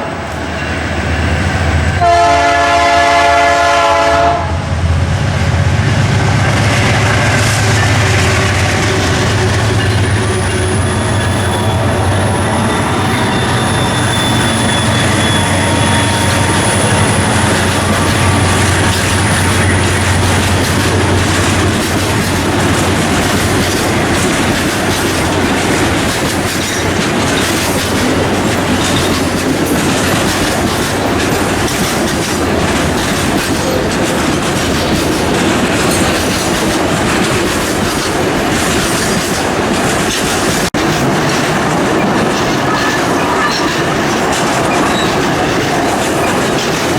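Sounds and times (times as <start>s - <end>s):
freight train wagons clattering: 0.0s - 46.9s
high wheel squeal: 7.6s - 23.9s.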